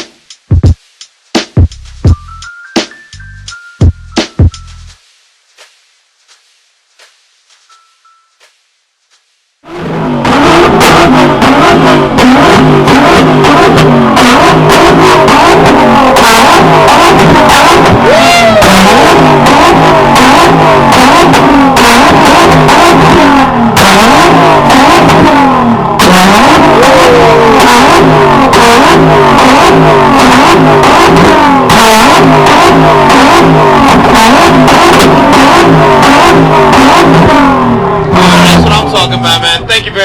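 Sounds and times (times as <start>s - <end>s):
car engine revving: 9.6s - 40.0s.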